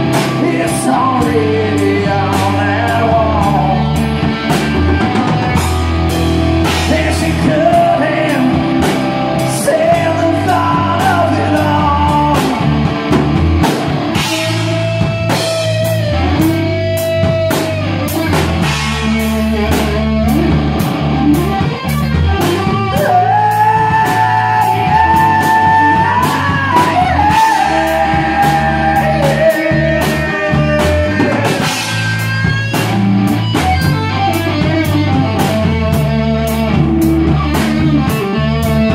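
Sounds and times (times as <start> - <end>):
person singing: 0.0 - 4.2, 6.6 - 13.0, 22.4 - 32.2
bass guitar: 0.0 - 38.9
electric guitar: 0.0 - 38.9
drum beat: 12.1 - 36.2.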